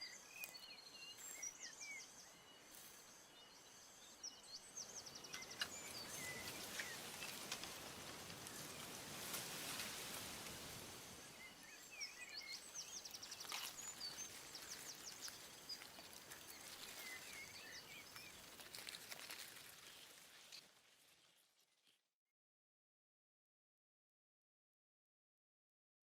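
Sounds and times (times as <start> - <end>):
birds chirping: 0.0 - 20.0
faint outdoor ambience: 0.0 - 21.6.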